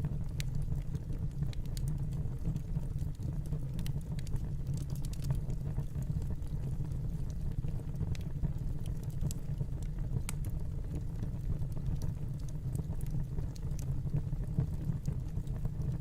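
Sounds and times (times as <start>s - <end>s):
fireplace fire crackling and popping: 0.0s - 16.0s.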